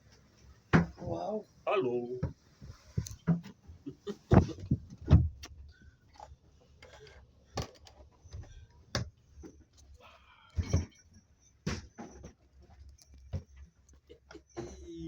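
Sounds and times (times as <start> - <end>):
knocks and rattling aboard boat: 2.1 - 5.5, 10.6 - 12.5.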